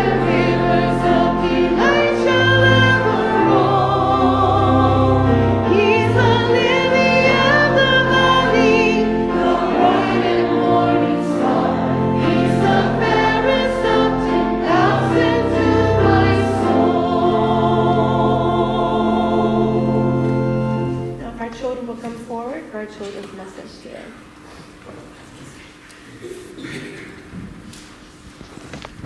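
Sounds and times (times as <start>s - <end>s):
choir singing a hymn: 0.0s - 21.4s
instrumental accompaniment: 0.0s - 22.6s.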